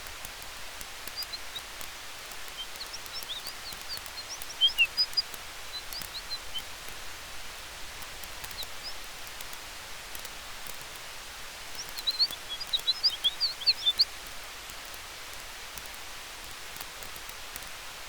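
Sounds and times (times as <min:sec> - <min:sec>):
campfire hiss and crackles: 0:00.0 - 0:18.0
high bird chirps: 0:01.1 - 0:01.7, 0:02.4 - 0:06.7, 0:11.8 - 0:14.1.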